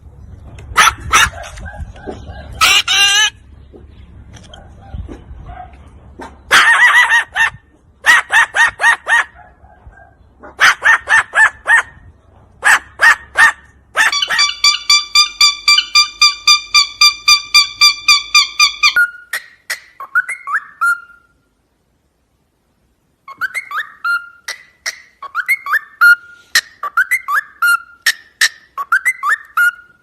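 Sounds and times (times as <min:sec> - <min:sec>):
parrot gliding squawks: 0:00.8 - 0:03.4, 0:12.7 - 0:21.3, 0:23.3 - 0:30.0
parrot calling: 0:02.1 - 0:03.4, 0:12.7 - 0:21.3, 0:23.2 - 0:30.0.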